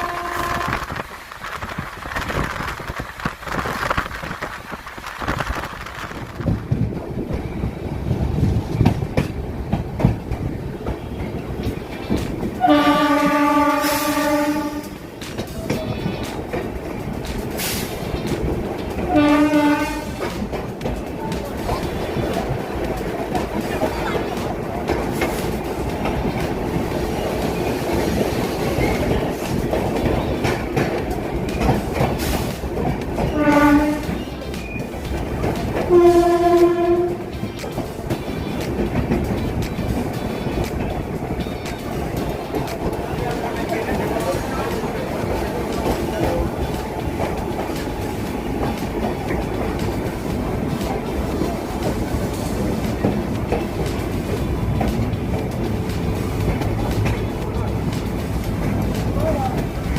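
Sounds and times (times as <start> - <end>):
train horn: 0.0 - 1.0, 12.6 - 15.1, 19.1 - 20.4, 33.2 - 34.2, 35.8 - 37.4
train rumbling on rails: 0.0 - 59.9.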